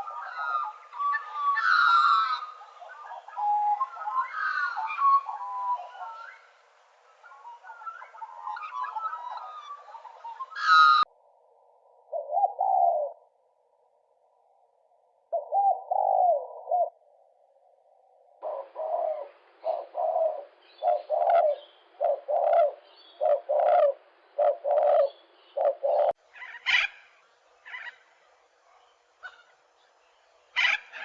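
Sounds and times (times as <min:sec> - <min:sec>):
birds calling: 0:00.0 - 0:11.1, 0:18.4 - 0:31.0.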